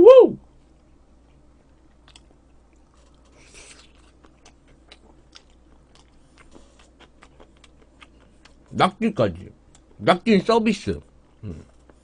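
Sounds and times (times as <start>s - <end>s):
chewing raw seafood: 0.8s - 8.7s.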